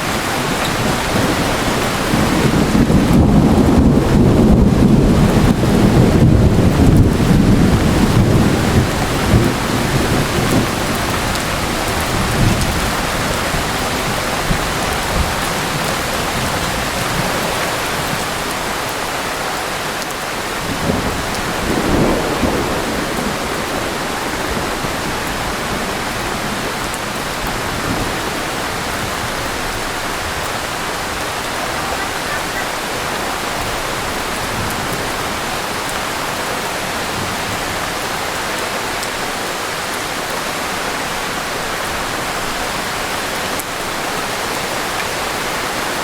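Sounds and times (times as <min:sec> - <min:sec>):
heavy rain: 0:00.0 - 0:46.0
low thunder rumble: 0:00.1 - 0:18.8, 0:20.6 - 0:35.8.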